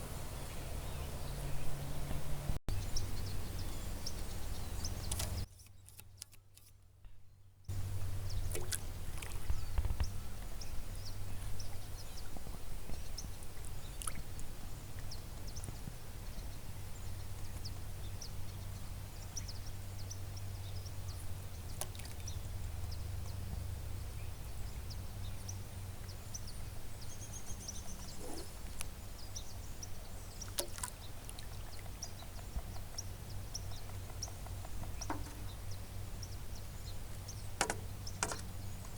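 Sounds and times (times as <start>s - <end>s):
wind on microphone: 7.7s - 20.0s
water trickling and splashing: 7.9s - 15.8s, 21.6s - 23.0s, 30.1s - 36.0s
faint bird chirps: 15.0s - 38.9s.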